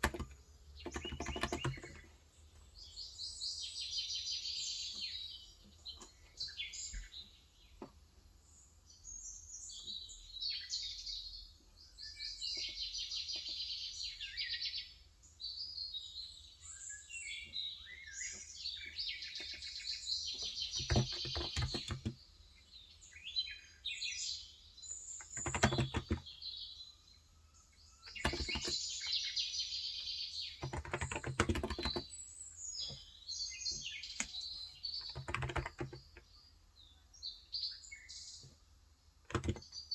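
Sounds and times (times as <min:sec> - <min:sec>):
keyboard typing: 0:00.0 - 0:02.1, 0:20.4 - 0:22.2, 0:25.2 - 0:26.3, 0:28.1 - 0:28.8, 0:30.6 - 0:32.1, 0:33.7 - 0:36.3, 0:39.3 - 0:39.8
small birds chirping: 0:00.0 - 0:39.9.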